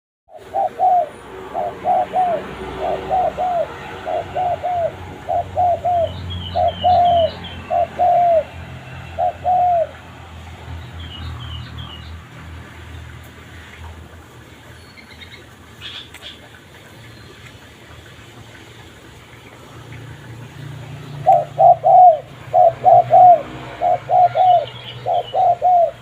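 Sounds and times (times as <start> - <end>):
dove cooing: 0.3 - 10.0, 20.6 - 26.0.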